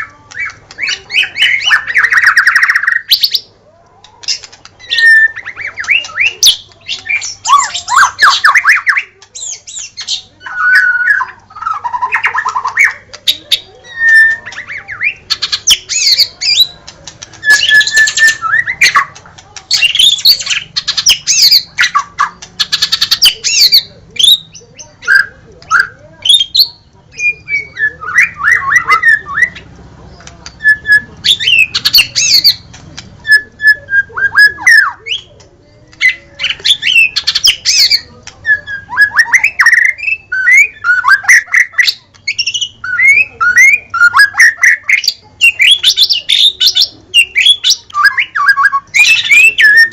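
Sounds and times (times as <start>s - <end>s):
bird singing whistled phrases: 4.8s - 13.0s, 13.8s - 16.8s, 17.4s - 29.6s, 36.0s - 49.9s.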